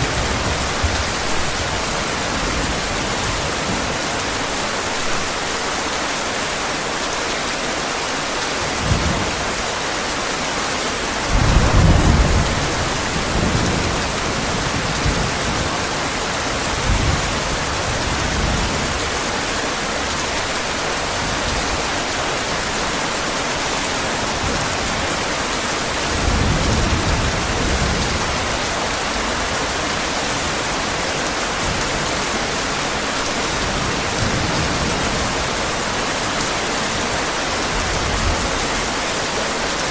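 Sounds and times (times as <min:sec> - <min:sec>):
thunder rumbling: 0:00.0 - 0:04.0, 0:11.2 - 0:19.2
heavy rain hissing: 0:00.0 - 0:39.9.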